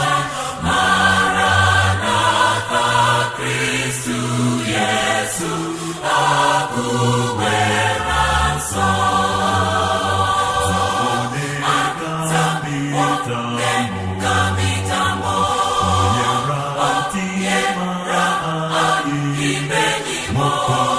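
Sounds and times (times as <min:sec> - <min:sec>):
choir singing held notes: 0:00.0 - 0:20.9
low bass line: 0:08.8 - 0:11.4, 0:13.6 - 0:16.6.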